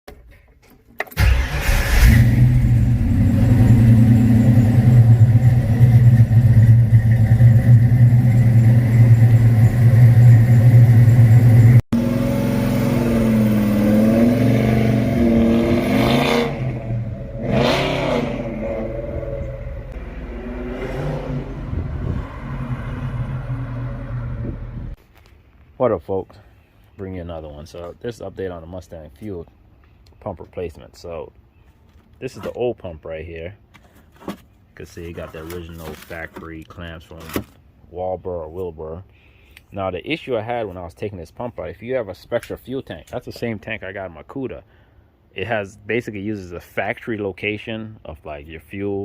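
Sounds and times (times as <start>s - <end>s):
car engine running loudly: 1.2s - 20.6s.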